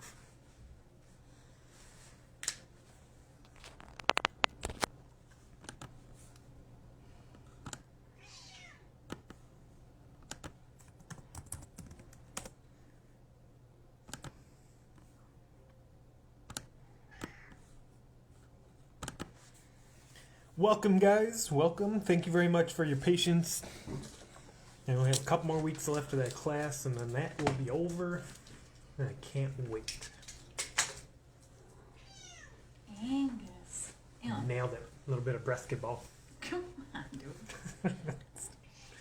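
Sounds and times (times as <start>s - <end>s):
faint steady hum: 0.0s - 39.0s
keyboard typing clicks: 5.6s - 6.0s, 10.2s - 12.6s, 14.1s - 14.4s, 16.4s - 17.6s, 19.0s - 19.4s.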